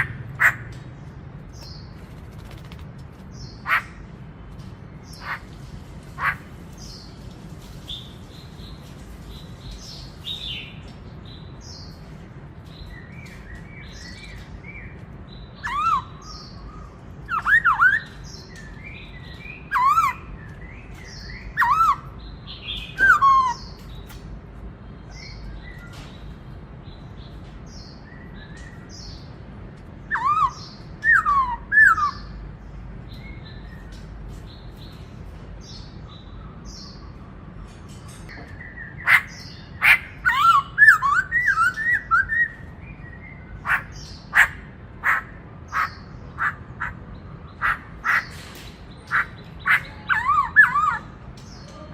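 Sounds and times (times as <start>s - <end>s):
bird whistling phrases: 30.1s - 32.3s, 39.8s - 42.6s, 49.1s - 51.2s.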